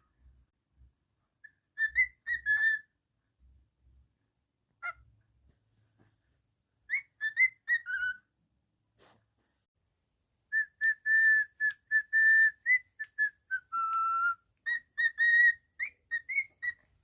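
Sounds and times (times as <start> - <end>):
cockatiel whistling: 1.4 - 3.0, 6.9 - 8.3, 10.5 - 16.9.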